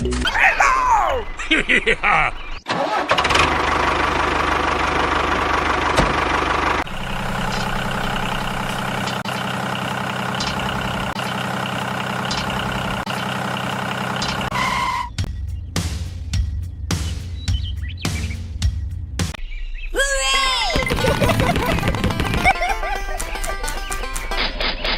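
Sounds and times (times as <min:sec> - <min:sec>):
engine idling: 0:02.7 - 0:16.8, 0:20.8 - 0:24.7.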